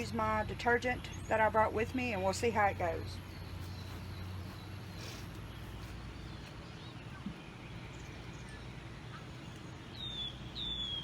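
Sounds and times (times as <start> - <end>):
outdoor background hiss: 0.0 - 11.0
faint bird chirps: 3.0 - 11.0.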